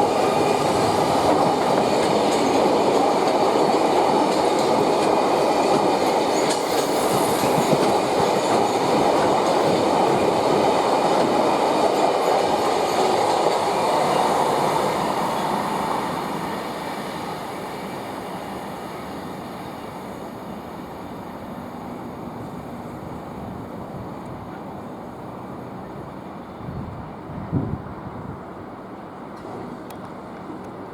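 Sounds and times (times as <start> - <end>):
freight train wheels clattering: 0.0 - 15.5.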